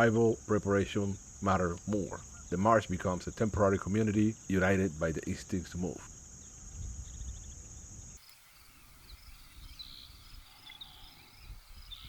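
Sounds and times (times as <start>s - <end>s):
high insect drone: 0.0s - 12.0s
high bird chirps: 8.2s - 12.0s.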